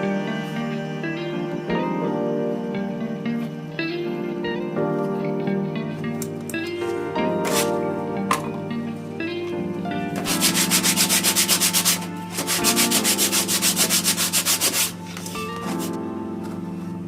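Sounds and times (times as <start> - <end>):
background music: 0.0 - 17.0
rapid rubbing strokes: 10.3 - 15.9.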